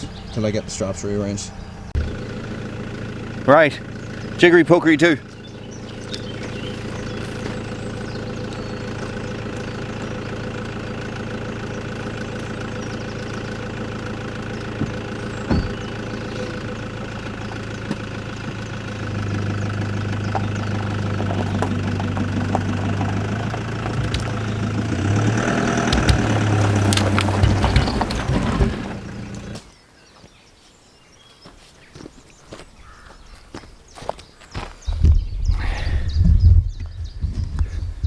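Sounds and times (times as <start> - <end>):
truck engine pulling: 0.0 - 29.8
sharp knocks: 14.8 - 16.6, 23.9 - 29.6.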